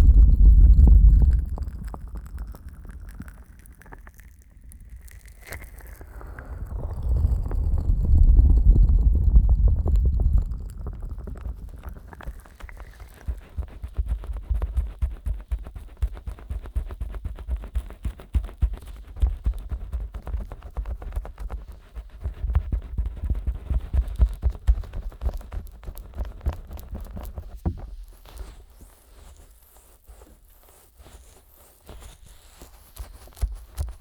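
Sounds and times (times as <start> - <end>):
soft low thumps: 0.0 - 2.4, 6.9 - 21.3
heavy low rumble: 0.0 - 2.7, 6.5 - 12.5
fingers rubbing microphone: 6.9 - 34.0.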